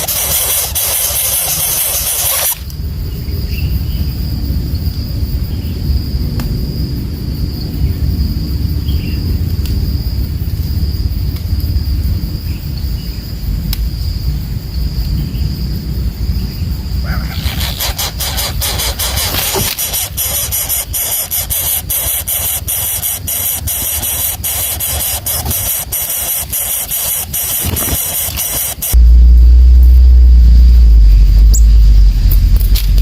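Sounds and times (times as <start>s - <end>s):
loud hiss: 0.0s - 2.7s, 17.2s - 33.0s
crackling hiss: 0.0s - 3.1s, 8.2s - 33.0s
insect high drone: 0.0s - 33.0s
steady low rumble: 1.0s - 17.4s, 28.7s - 33.0s
faint chirps: 16.3s - 19.4s, 20.1s - 33.0s.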